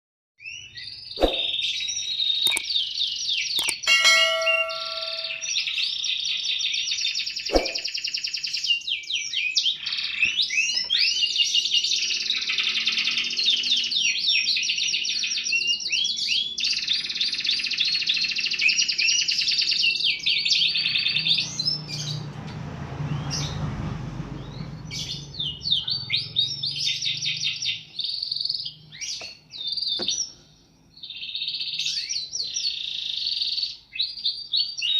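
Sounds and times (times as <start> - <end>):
canary singing trills: 0.4 - 34.9
sharp clicks: 2.5 - 2.7, 3.6 - 3.9
brief steady tone: 3.6 - 5.4.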